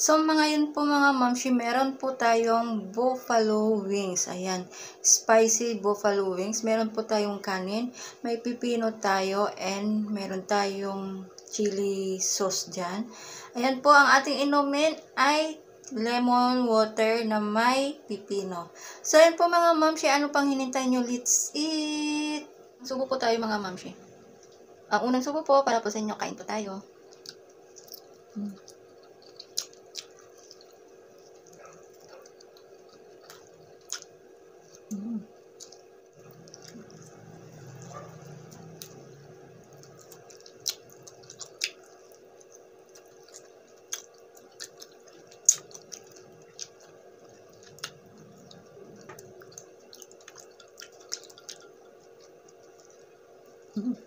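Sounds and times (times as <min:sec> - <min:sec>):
steady low hum: 0:00.0 - 0:54.0
chewing: 0:24.3 - 0:24.7, 0:26.9 - 0:54.0
mouth clicks and lip smacks: 0:27.1 - 0:32.7, 0:39.8 - 0:46.9.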